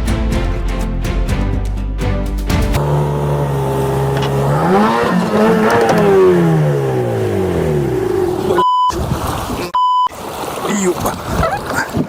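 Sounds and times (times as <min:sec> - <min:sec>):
motor engine humming: 0:00.9 - 0:08.6.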